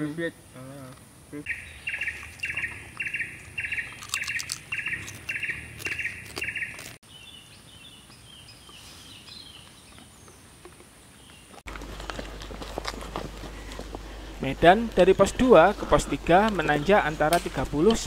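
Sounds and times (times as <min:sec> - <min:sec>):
faint high bird twittering: 0:01.4 - 0:10.5
bird buzzy trill: 0:01.5 - 0:07.0
potato chips crackling in tub: 0:03.9 - 0:07.0.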